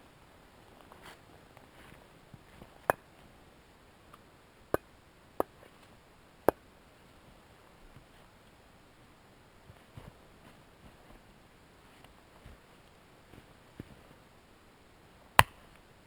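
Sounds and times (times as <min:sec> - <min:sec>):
hatchet chopping wood: 0:15.4 - 0:15.6.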